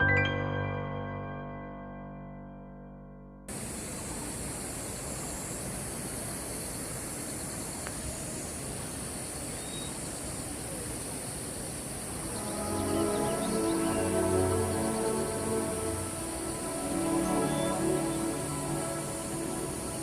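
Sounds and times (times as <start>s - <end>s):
music: 0.0s - 3.5s, 12.3s - 20.0s
high-pitched hiss: 3.5s - 20.0s
outdoor background noise: 3.5s - 20.0s.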